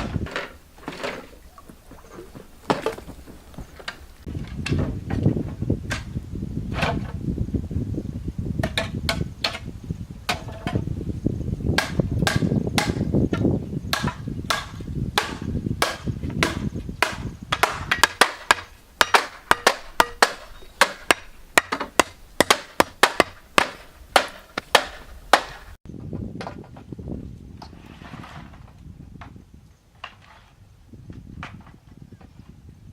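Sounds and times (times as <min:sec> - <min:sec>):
hand tool striking material: 0:11.8 - 0:25.8.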